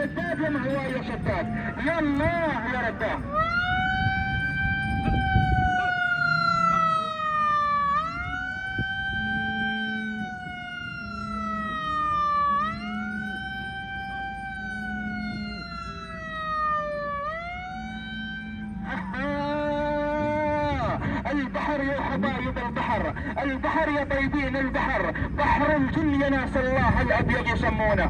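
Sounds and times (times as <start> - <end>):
siren wailing: 0.0 - 28.0.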